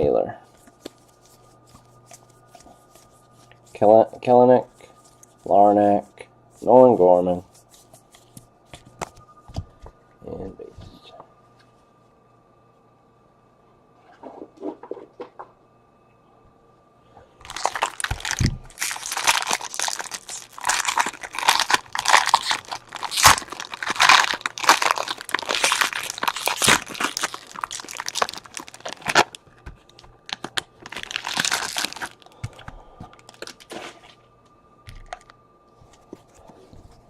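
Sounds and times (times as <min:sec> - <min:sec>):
wrapper tearing and crinkling: 0:17.4 - 0:32.4, 0:33.1 - 0:33.9.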